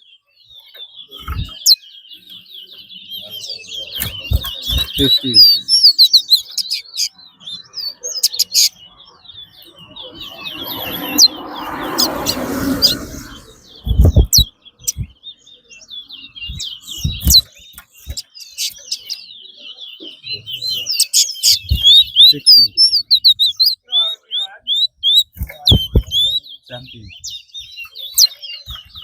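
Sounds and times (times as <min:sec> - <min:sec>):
songbirds chirping and twittering: 0:00.0 - 0:29.0
rushing noise: 0:10.0 - 0:14.4
low thumps: 0:10.6 - 0:15.1.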